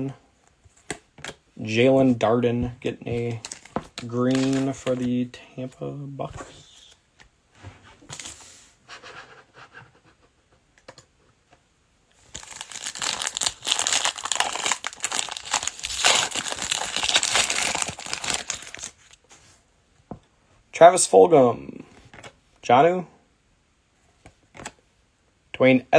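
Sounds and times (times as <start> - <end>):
plastic wrapper crinkling and tearing: 3.3 - 5.1, 12.2 - 19.3.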